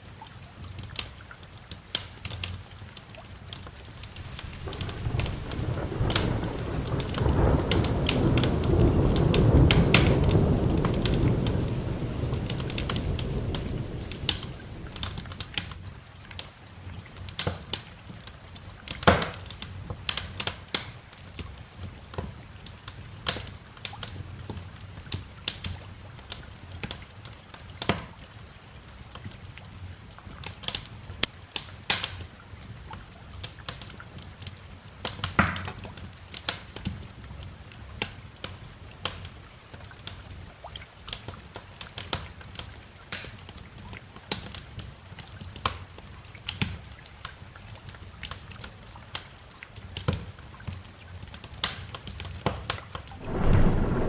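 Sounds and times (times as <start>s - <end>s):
wood fire crackling: 3.2s - 15.9s, 53.0s - 54.0s
thunder rumbling: 4.2s - 15.7s, 53.1s - 54.0s.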